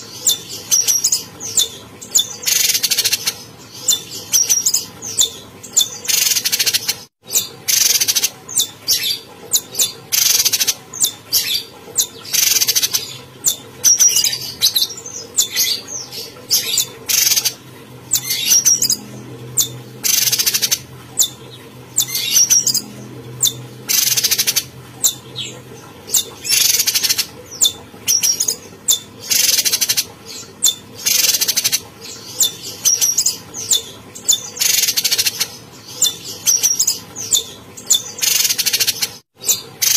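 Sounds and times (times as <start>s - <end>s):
bird chirps: 0.2s - 39.9s.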